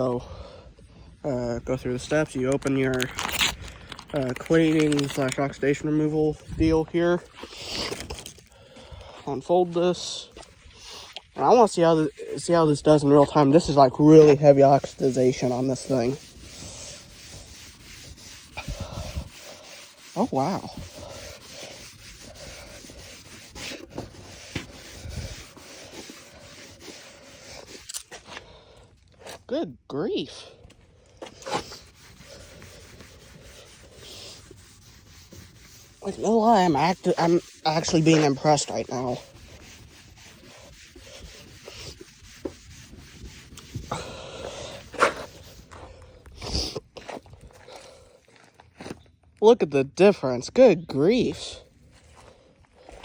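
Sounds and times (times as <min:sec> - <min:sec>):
wipe rubbing plastic lens: 0:02.0 - 0:08.5, 0:09.8 - 0:28.3, 0:31.2 - 0:45.8.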